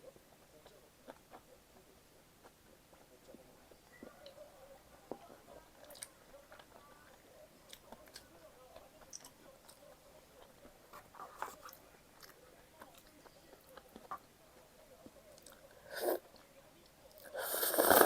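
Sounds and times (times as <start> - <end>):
person chewing food: 5.1 - 14.2.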